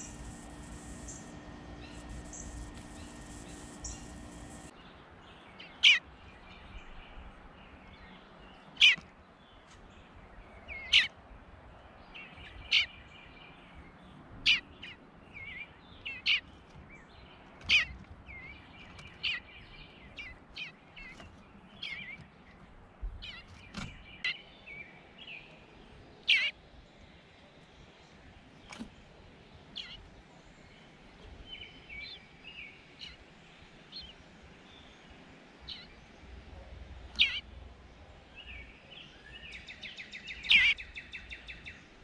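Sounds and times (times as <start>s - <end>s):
faint high hum: 0.0s - 4.7s
soft bird twittering: 0.0s - 7.1s, 37.0s - 41.9s.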